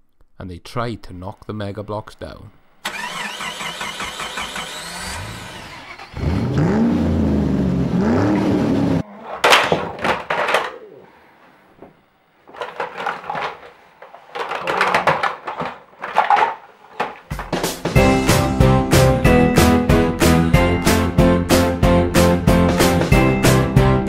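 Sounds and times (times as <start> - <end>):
toy truck engine sound: 2.8 - 6.3
plastic blocks clattering down: 9.4 - 10.8, 12.5 - 17.6.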